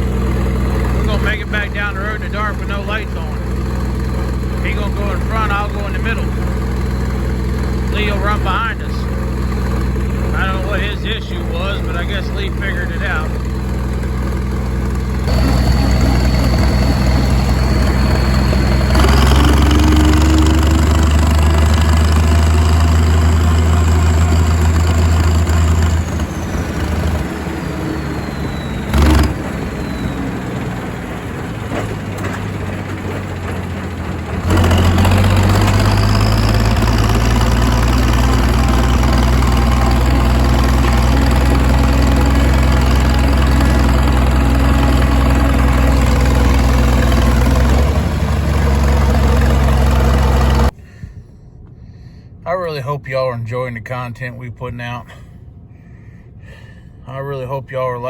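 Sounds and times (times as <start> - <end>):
tractor engine running: 0.0 - 50.8
high whine: 15.2 - 23.1.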